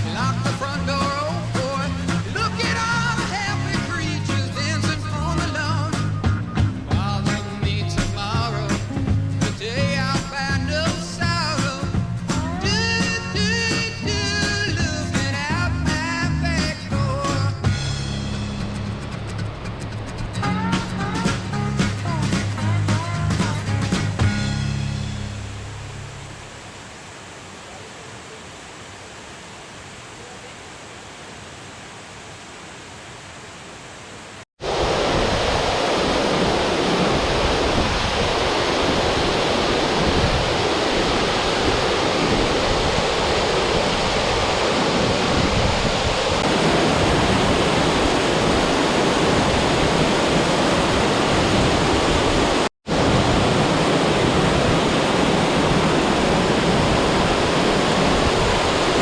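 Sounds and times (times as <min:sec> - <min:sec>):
waterfall roaring: 0:00.0 - 0:17.5, 0:18.1 - 0:59.0.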